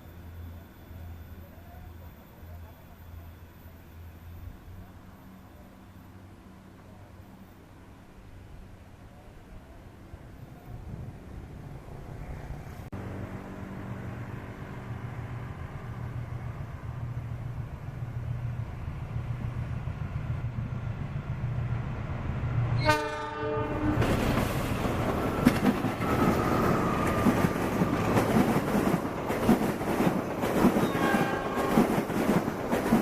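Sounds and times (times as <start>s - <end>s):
train engine hum: 0.0s - 33.0s
train rumble and wheel clatter: 0.0s - 33.0s
train horn blast: 22.8s - 24.2s, 30.8s - 31.9s.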